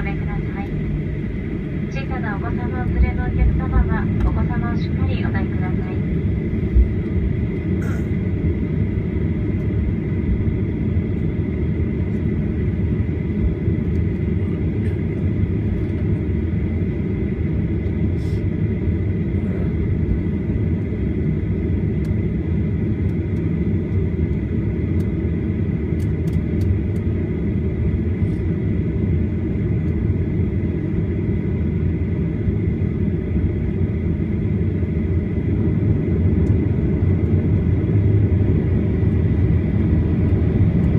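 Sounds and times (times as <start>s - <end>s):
high engine whine: 0.0s - 40.9s
jet engine cabin rumble: 0.0s - 40.9s.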